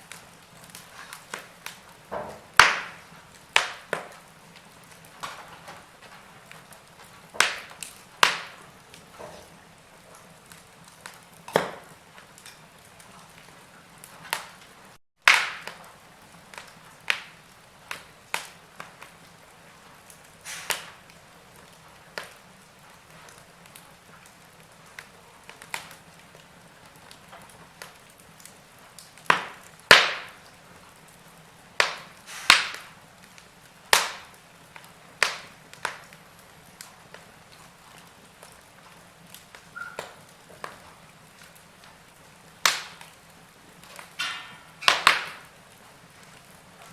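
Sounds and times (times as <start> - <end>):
faint steady hiss: 0.0 - 46.9
wood fire crackling: 0.0 - 46.9.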